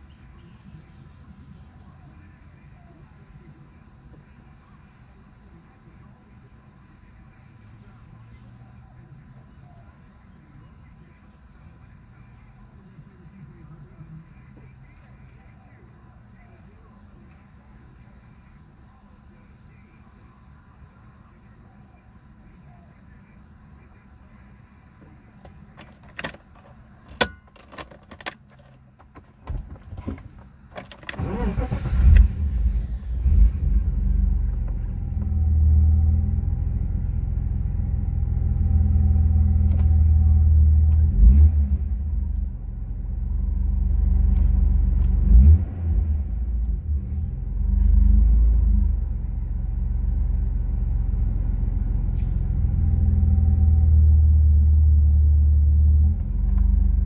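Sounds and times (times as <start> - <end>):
car engine idling: 0.0 - 57.0
key clicking in ignition: 25.5 - 32.3.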